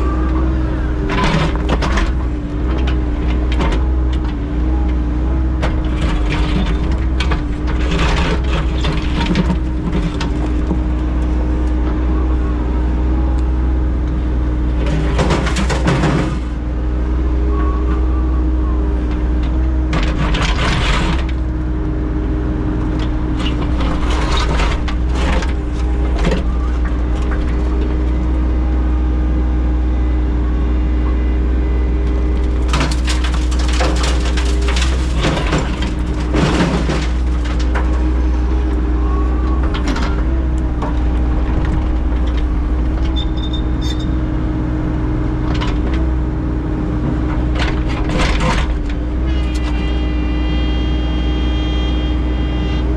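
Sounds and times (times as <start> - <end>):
engine running steadily: 0.0 - 52.9
scraping and clattering: 5.6 - 11.0, 23.0 - 28.2, 32.4 - 38.6.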